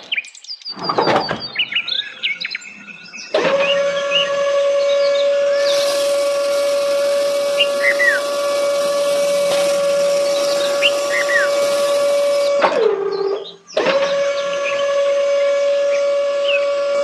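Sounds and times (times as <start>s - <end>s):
bird chirps: 0.0s - 14.8s
small electric motor whining: 3.4s - 12.9s.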